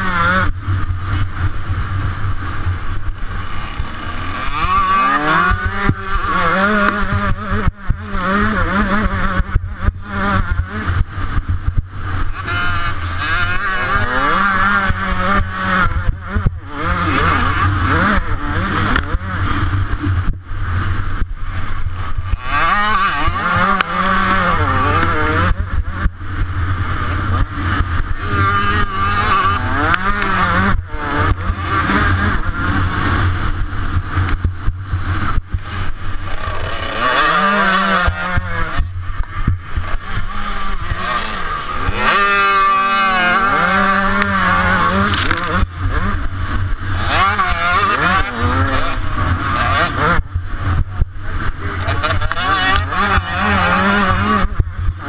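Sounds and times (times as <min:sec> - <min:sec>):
low wind rumble: 0:00.0 - 0:55.0
motocross bike engine revving: 0:00.0 - 0:55.0.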